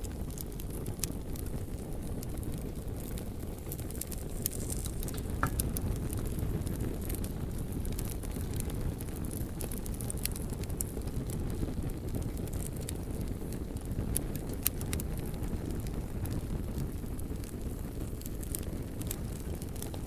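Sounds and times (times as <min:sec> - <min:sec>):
fire crackling and popping: 0:00.0 - 0:20.0
flames rumbling: 0:00.0 - 0:20.0.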